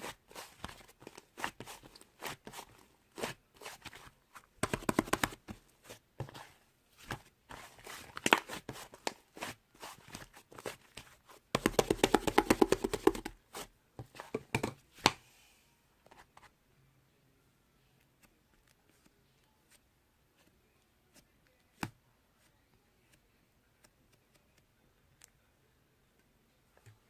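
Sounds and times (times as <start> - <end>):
rapid crackling of slime: 7.1 - 13.7.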